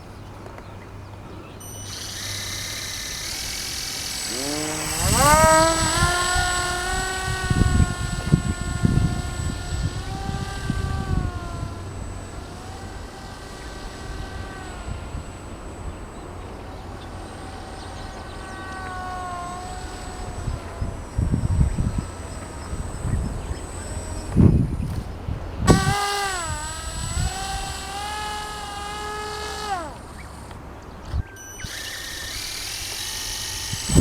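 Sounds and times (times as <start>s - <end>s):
small motor high whine: 0.0s - 34.0s.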